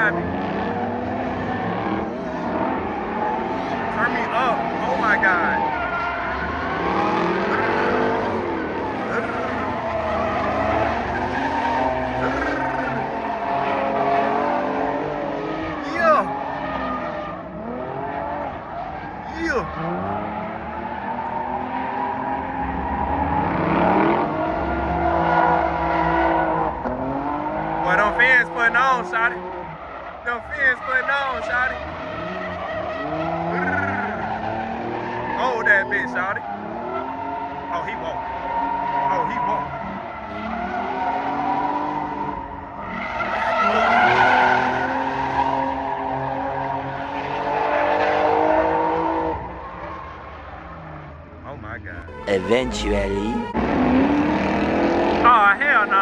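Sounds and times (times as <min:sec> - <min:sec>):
car engine at high revs: 0:00.0 - 0:52.2, 0:53.0 - 0:56.0
tyres squealing: 0:02.8 - 0:14.4, 0:27.8 - 0:41.6, 0:42.9 - 0:46.8.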